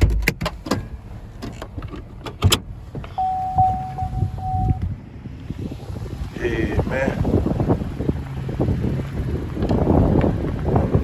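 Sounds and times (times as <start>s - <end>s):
electronic warning chime: 3.2s - 4.8s.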